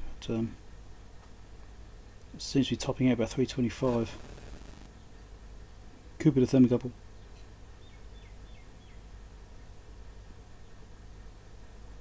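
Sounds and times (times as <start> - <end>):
low steady hum: 0.0 - 12.0
bird chirping: 7.2 - 9.0.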